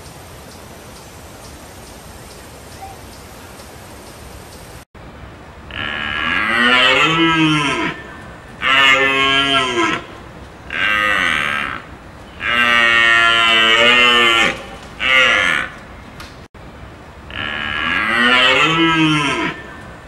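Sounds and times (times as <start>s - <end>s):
cow mooing: 5.7s - 10.1s, 10.7s - 15.8s, 17.3s - 19.8s.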